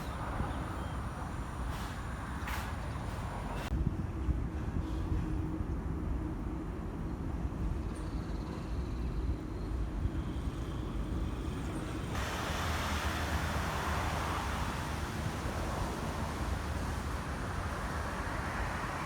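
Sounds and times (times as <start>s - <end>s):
traffic hiss: 0.0s - 3.7s, 9.8s - 19.0s
street traffic rumble: 0.0s - 19.0s.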